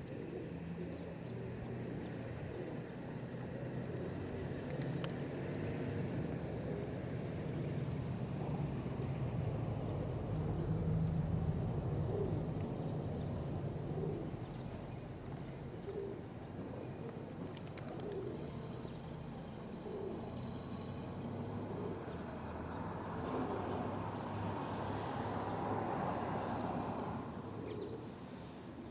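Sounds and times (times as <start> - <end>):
pigeons cooing: 0.0 - 5.6, 6.5 - 7.7, 11.9 - 18.8, 19.7 - 20.5, 21.4 - 22.3, 27.6 - 28.0.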